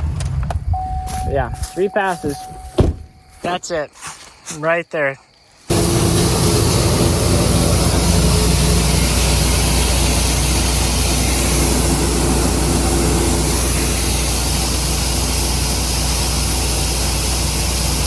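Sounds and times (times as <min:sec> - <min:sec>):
constant hiss: 0:05.5 - 0:18.0
higher hum: 0:05.7 - 0:15.6
heavy machine engine running: 0:05.7 - 0:18.0.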